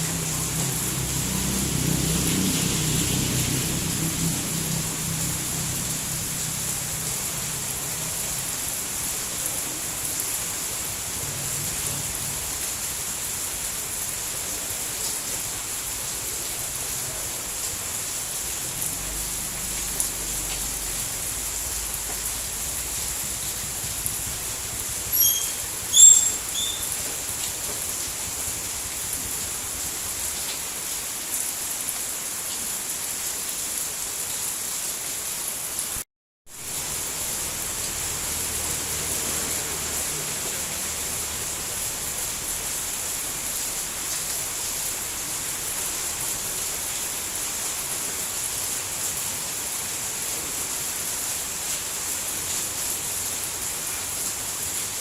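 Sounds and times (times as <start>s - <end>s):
rain falling: 0.0s - 55.0s
short high chirps: 25.1s - 26.9s.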